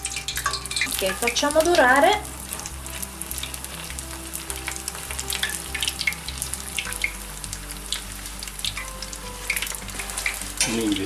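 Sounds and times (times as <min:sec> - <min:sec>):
deep-frying sizzle with pops: 0:00.0 - 0:11.0.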